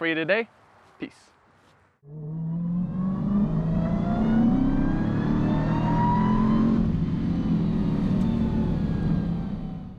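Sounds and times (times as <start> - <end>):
car engine accelerating: 2.0 - 9.9.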